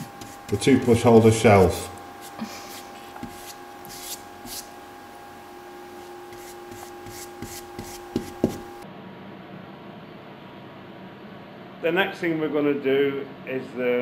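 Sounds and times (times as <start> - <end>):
brush strokes on wood: 0.0 - 4.7, 5.9 - 8.8.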